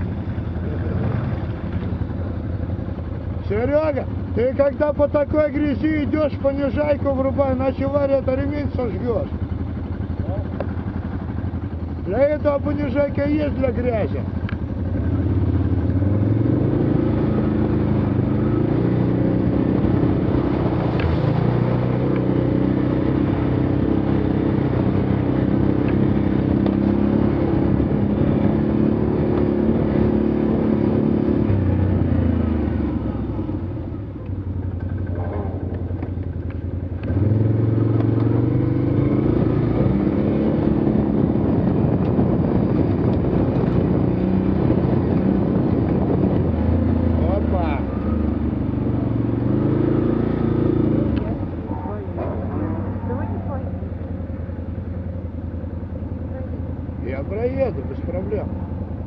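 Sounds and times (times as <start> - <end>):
atv engine revving in mud: 15.0 - 33.4, 37.0 - 53.4.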